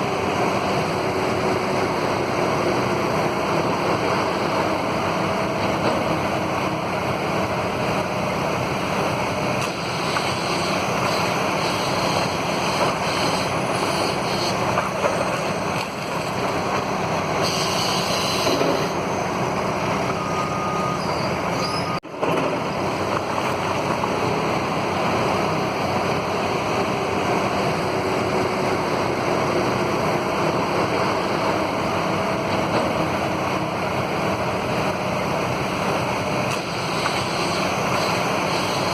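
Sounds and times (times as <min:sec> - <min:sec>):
demolition machinery engine running: 0:00.0 - 0:38.9.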